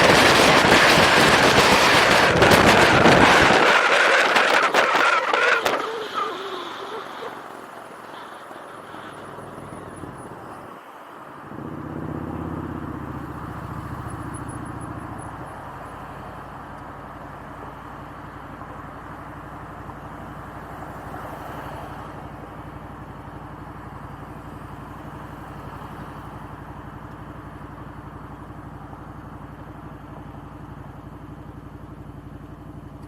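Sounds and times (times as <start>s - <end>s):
wind buffeting microphone: 0.0s - 6.0s
motorcycle engine hum: 0.0s - 10.8s, 11.4s - 21.2s, 22.1s - 33.0s.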